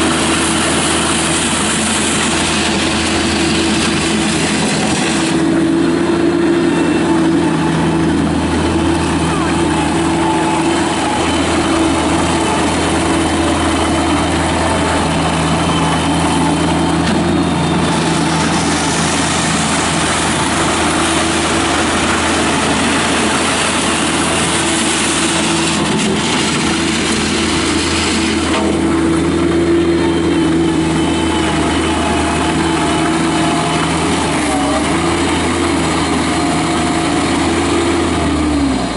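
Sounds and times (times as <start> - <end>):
diesel engine running steadily: 0.0 - 38.9.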